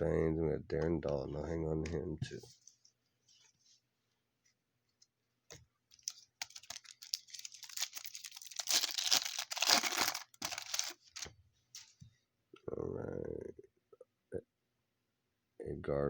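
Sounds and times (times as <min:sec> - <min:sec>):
wrapper tearing and crinkling: 0:05.9 - 0:11.3.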